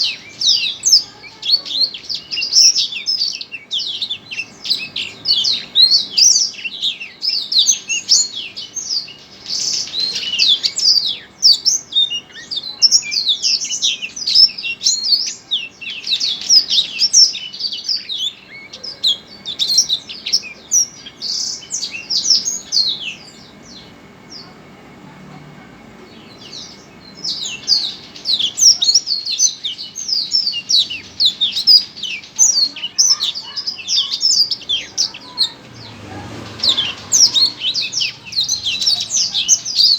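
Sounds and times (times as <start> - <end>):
songbird chattering song: 0.0 - 39.9.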